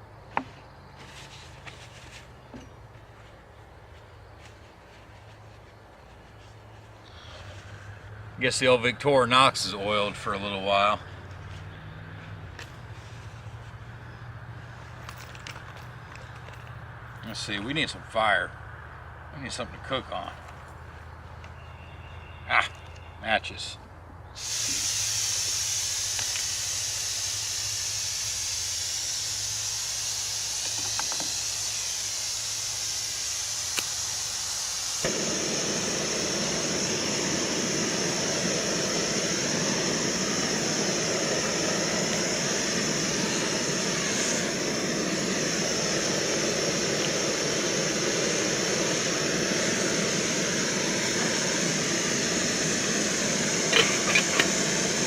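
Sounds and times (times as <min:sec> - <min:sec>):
gas stove burner hissing: 0:24.3 - 0:55.0.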